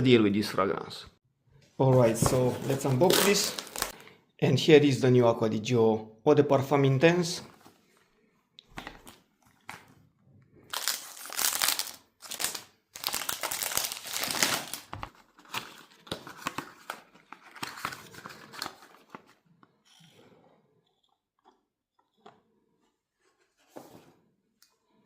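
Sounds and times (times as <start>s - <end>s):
packaging torn and crinkled: 2.7s - 4.0s, 10.7s - 19.2s.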